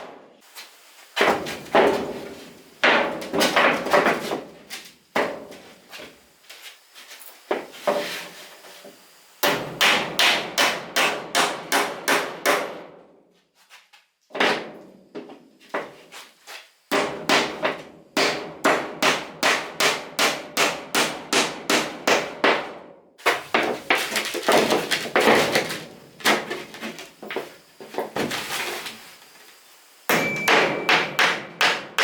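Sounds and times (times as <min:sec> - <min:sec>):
hammer blows on wood: 0:30.1 - 0:32.0.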